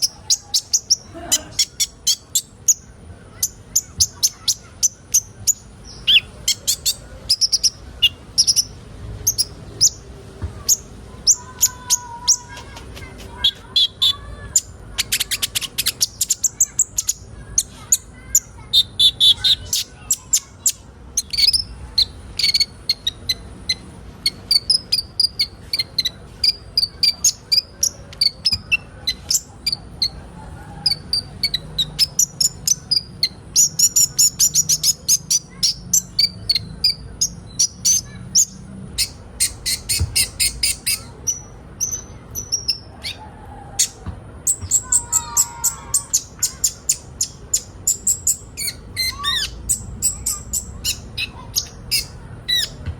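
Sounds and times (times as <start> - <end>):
sunbirds chipping and twittering: 0.0 - 52.9.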